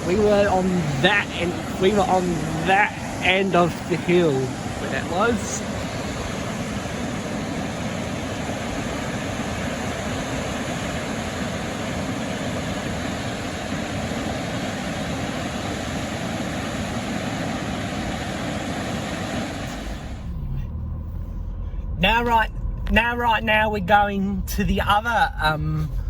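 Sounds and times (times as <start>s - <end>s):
waterfall rushing: 0.0s - 20.3s.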